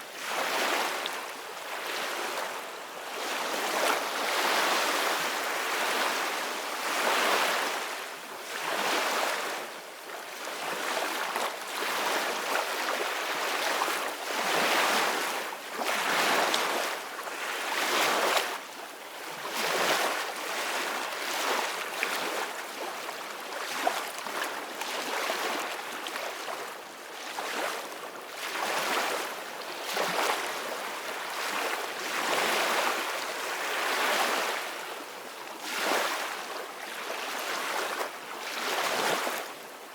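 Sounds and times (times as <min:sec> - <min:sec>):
ocean waves breaking on shore: 0:19.3 - 0:39.7.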